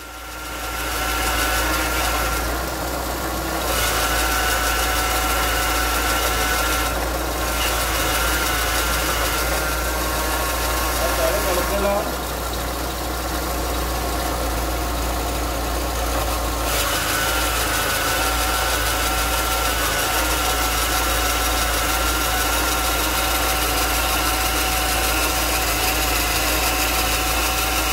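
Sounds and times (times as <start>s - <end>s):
car engine idling: 2.4s - 3.7s, 8.8s - 16.7s, 20.0s - 27.9s.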